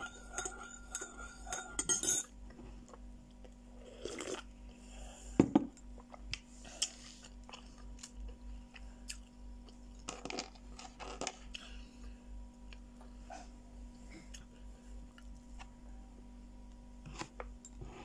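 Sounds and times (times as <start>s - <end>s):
teaspoon clinking in ceramic mug: 0.0s - 2.3s.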